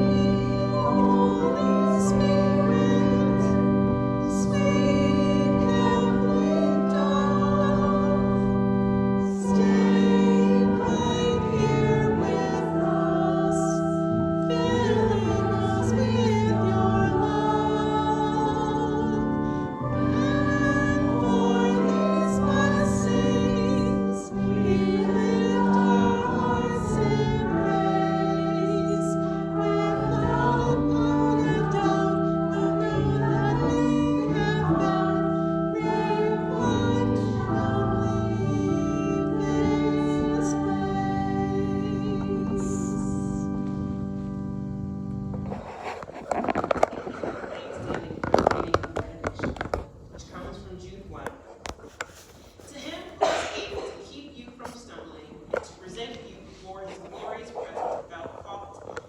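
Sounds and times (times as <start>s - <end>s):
choir singing slow song: 0.0s - 44.3s.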